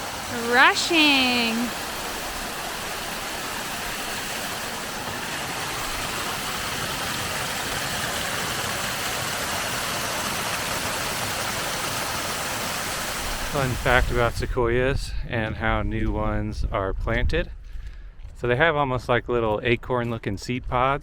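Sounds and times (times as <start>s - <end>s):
stream water rushing: 0.0s - 14.1s.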